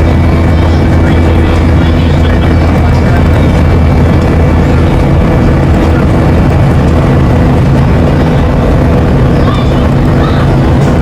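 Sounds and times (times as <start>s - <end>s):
airliner engine drone: 0.0s - 11.0s.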